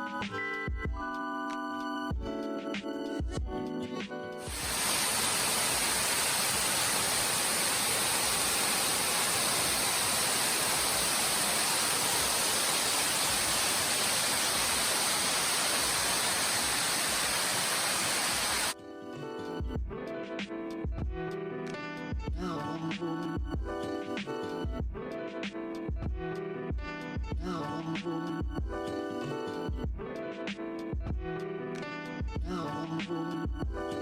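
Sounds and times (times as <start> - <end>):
loud rushing hiss: 4.5 - 18.8.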